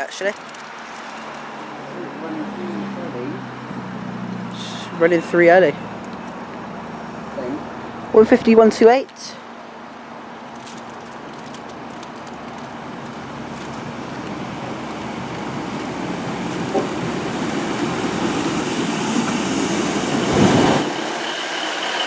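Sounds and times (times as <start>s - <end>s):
diesel train pulling in: 12.6s - 22.0s.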